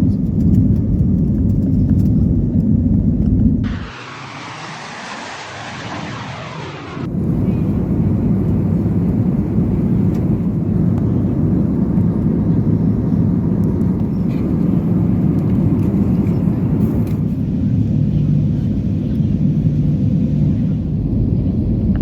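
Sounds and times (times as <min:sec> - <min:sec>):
low engine rumble: 0:00.1 - 0:22.0
sweeping whoosh: 0:03.6 - 0:07.1.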